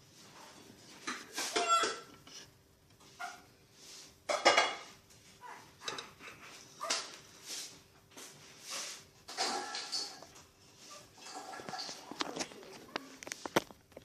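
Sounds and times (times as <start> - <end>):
dog barking: 6.8 - 7.1.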